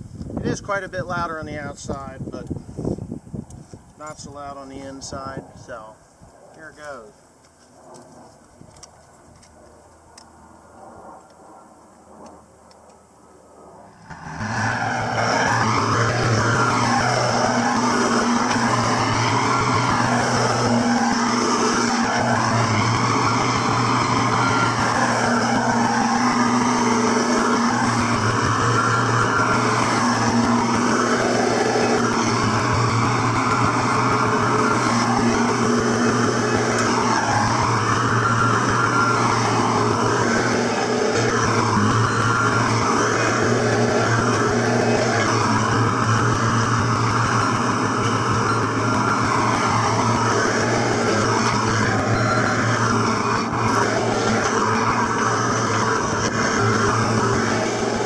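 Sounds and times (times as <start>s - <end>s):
faint high whine: 0.0s - 58.0s
skid steer engine revving: 14.0s - 58.0s.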